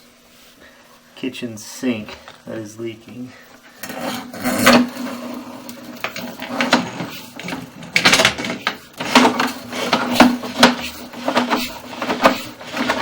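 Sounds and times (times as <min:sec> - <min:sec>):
cable scraping and knocking in pipe: 0:03.8 - 0:13.0.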